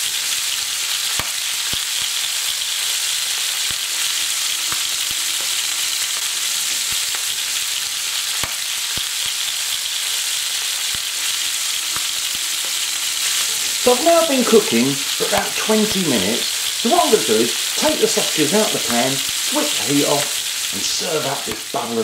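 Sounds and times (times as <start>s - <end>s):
food frying in a pan: 0.0s - 22.0s.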